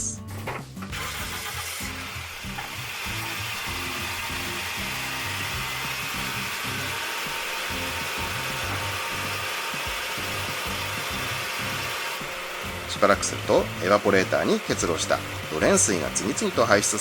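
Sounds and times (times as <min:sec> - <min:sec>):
background music: 0:00.0 - 0:17.0
car engine starting: 0:00.3 - 0:09.2
car air conditioning fan blowing: 0:00.8 - 0:17.0.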